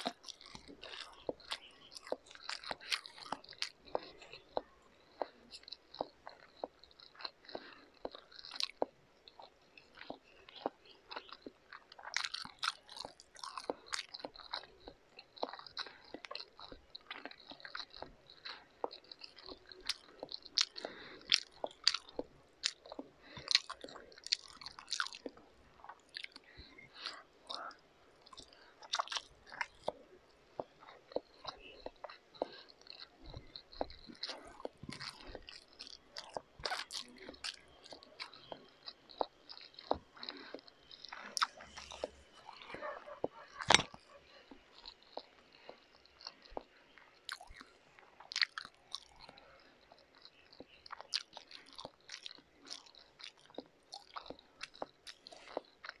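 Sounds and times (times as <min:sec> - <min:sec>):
person chewing noodles: 0:00.0 - 0:56.0
wet mouth smacks and clicks: 0:43.6 - 0:46.7.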